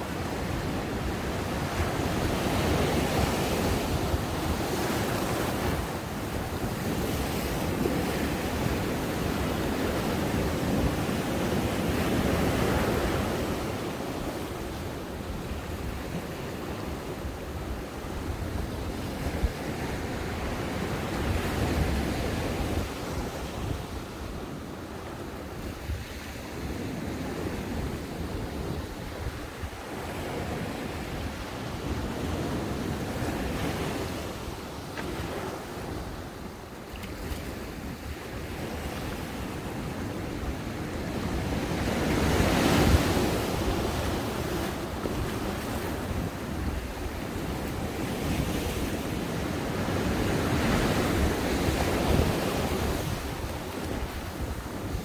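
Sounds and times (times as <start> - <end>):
ocean waves breaking on beach: 0.0 - 55.0
wind rumble on microphone: 0.0 - 55.0.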